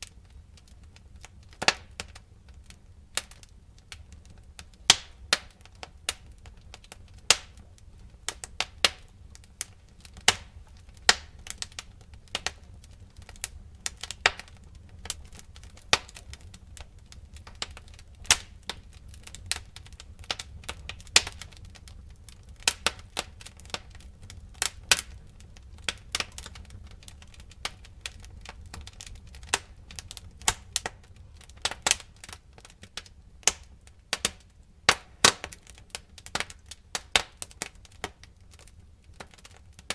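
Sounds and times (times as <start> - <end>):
low rumble of flames: 0.0 - 39.9
wood fire crackling: 0.0 - 39.9
sharp pops and snaps: 3.2 - 6.3, 8.3 - 21.6, 25.8 - 39.9.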